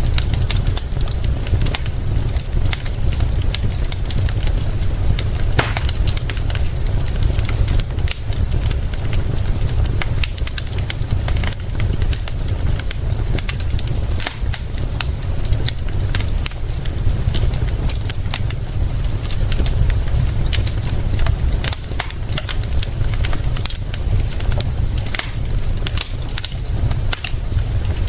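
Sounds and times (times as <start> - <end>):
low rumble: 0.0 - 17.8
rain hiss: 0.0 - 28.0
wood fire crackling: 0.0 - 28.0.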